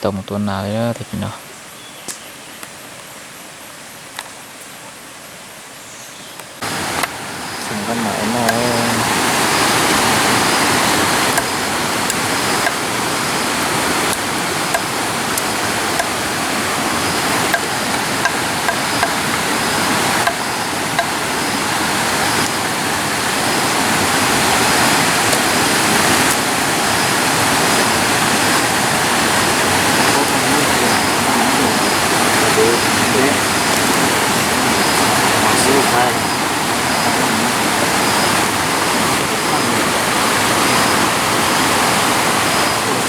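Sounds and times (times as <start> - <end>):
running water rushing: 6.5 - 43.0.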